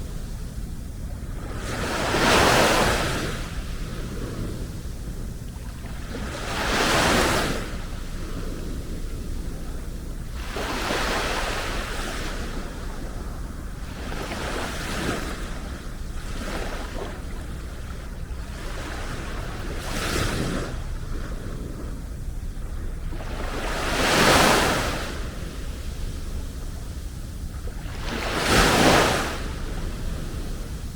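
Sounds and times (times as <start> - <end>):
sea waves breaking on beach: 0.0 - 30.9
low rumble: 3.4 - 6.4.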